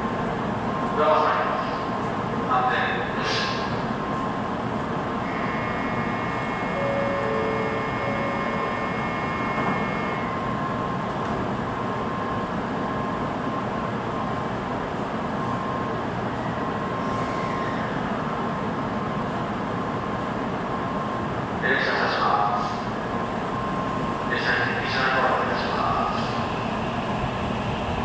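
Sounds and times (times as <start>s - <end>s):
train equipment humming and whirring: 0.0s - 28.0s.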